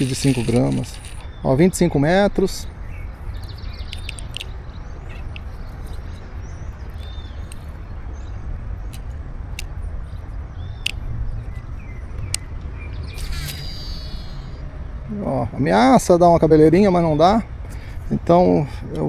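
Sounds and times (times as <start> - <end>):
sharp ticks: 0.0 - 1.3, 2.4 - 8.2, 8.8 - 14.8
birds chirping: 0.0 - 19.0.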